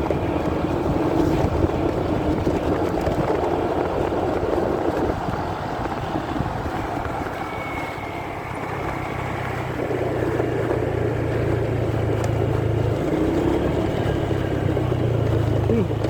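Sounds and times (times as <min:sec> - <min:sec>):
muffled motorcycle engine: 0:00.0 - 0:16.0
road and wind rumble: 0:00.0 - 0:16.0.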